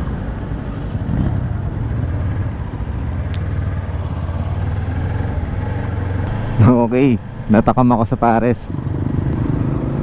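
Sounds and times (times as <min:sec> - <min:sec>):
riding wind and road noise: 0:00.0 - 0:10.0
motorcycle engine running: 0:00.9 - 0:06.3.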